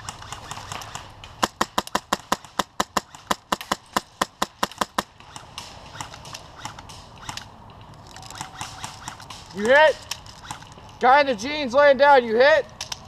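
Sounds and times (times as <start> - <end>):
airsoft gun rapid shots: 0.0 - 7.5, 8.3 - 10.6.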